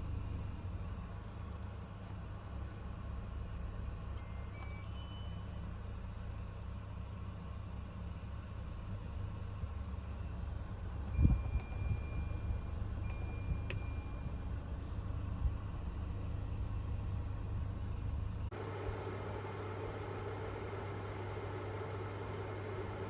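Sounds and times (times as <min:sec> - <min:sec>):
air conditioner humming: 0:00.0 - 0:06.2
long electronic beeps: 0:04.2 - 0:05.4.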